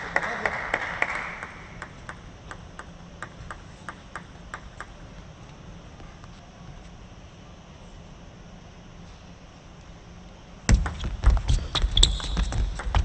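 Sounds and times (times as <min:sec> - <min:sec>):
arena applause: 0:00.0 - 0:02.0
table tennis ball bouncing: 0:01.8 - 0:05.3, 0:10.7 - 0:13.0.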